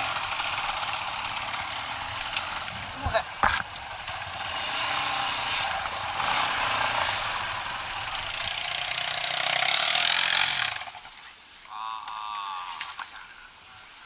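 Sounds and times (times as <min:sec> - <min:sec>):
motorcycle engine revving: 0:00.0 - 0:11.1.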